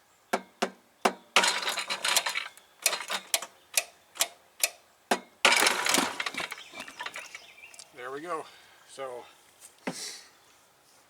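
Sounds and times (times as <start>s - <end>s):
rough noise: 5.4s - 7.8s.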